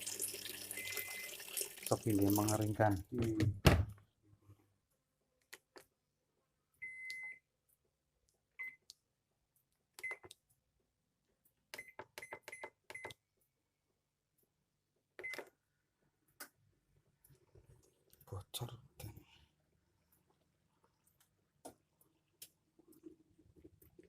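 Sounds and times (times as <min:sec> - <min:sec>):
control panel beeps: 0:06.8 - 0:07.4, 0:10.0 - 0:10.3, 0:11.8 - 0:13.2.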